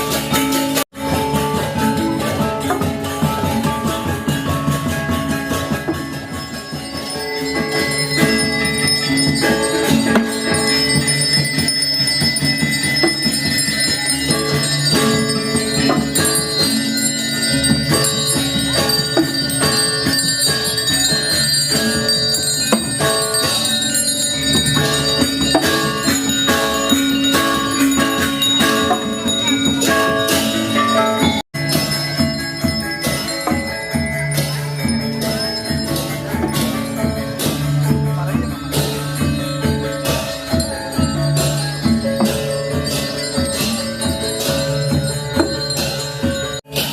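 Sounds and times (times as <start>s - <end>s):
gamelan music: 0.0s - 46.9s.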